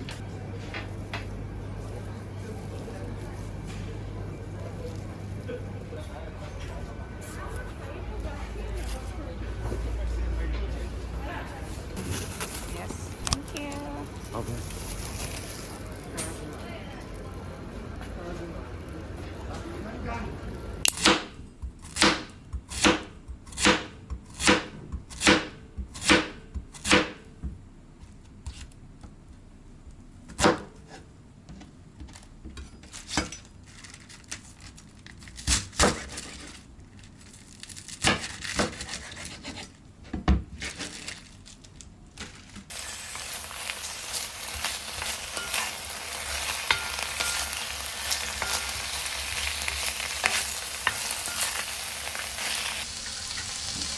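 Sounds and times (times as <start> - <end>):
kitchen utensils knocking: 42.7 - 52.8
food sizzling in frying pan: 42.7 - 53.9.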